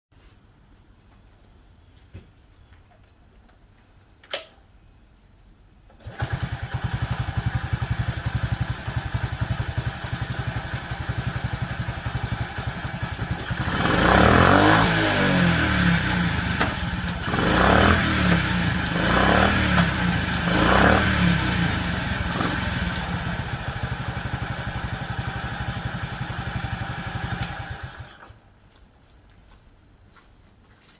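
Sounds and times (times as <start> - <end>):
click: 4.2 - 4.7, 27.4 - 27.6
motorcycle engine idling and revving: 6.0 - 28.4.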